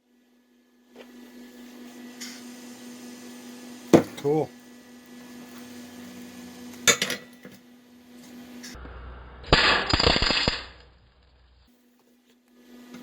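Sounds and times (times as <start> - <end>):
welding arc crackling and popping: 8.7 - 11.7.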